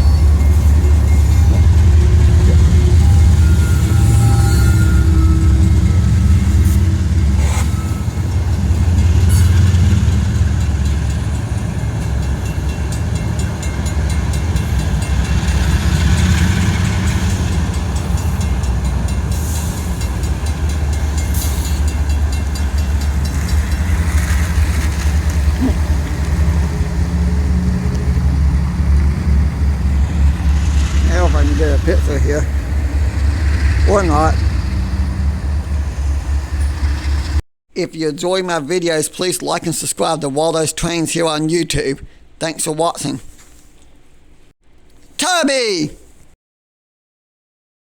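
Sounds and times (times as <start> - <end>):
train rumbling past: 0.0 - 37.4
wheels clicking over rail joints: 5.6 - 34.8.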